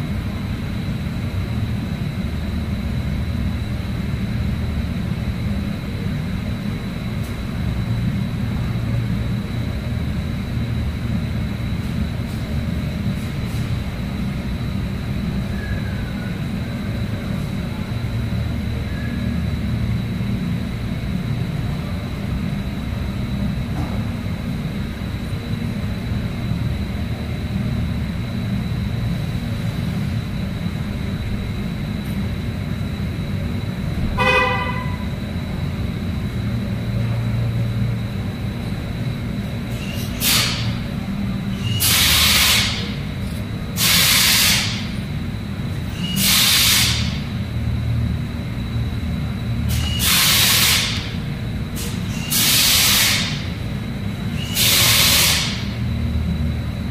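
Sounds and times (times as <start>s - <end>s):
car horn toot: 34.2s - 35.1s
loud hissing blasts: 39.7s - 40.8s, 41.7s - 43.0s, 43.8s - 45.0s, 46.1s - 47.2s, 49.7s - 51.2s, 51.8s - 53.5s, 54.4s - 55.8s.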